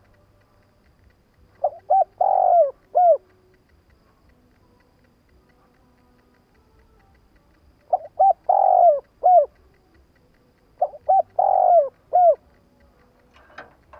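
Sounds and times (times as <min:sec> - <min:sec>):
dove cooing: 0:01.6 - 0:03.3, 0:07.9 - 0:09.6, 0:10.8 - 0:12.5.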